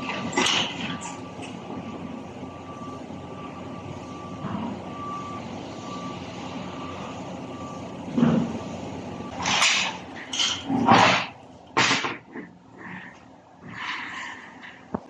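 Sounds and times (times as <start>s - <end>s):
reversing alarm beeping: 0.0s - 11.6s
workshop background noise: 6.7s - 15.0s.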